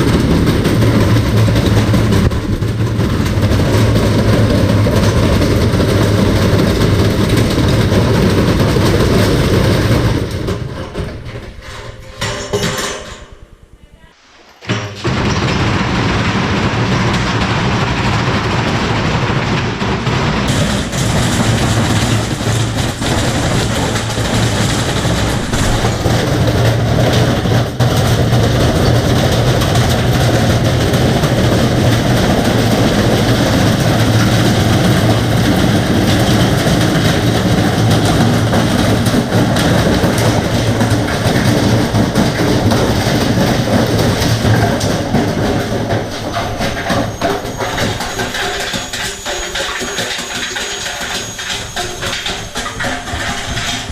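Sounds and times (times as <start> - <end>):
washing machine banging in spin: 0.0 - 13.4, 14.4 - 53.9
washing machine low hum: 13.6 - 53.9.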